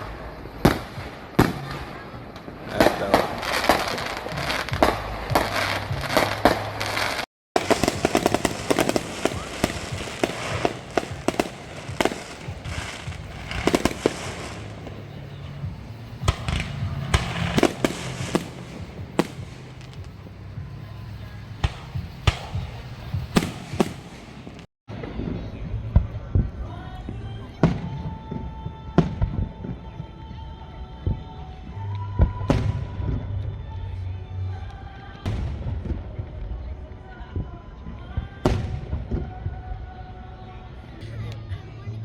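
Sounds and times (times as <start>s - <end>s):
firework bangs: 0.0s - 29.8s
firework crackling: 0.0s - 30.0s.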